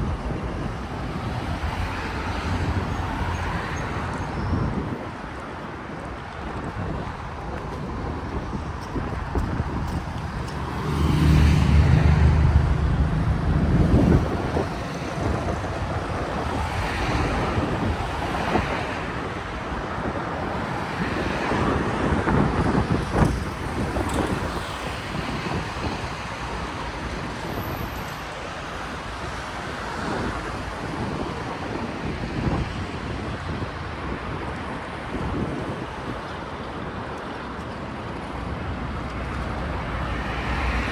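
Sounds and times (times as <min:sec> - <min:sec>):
passing cars: 0:00.0 - 0:40.9
vehicle engine passing close: 0:10.5 - 0:14.8.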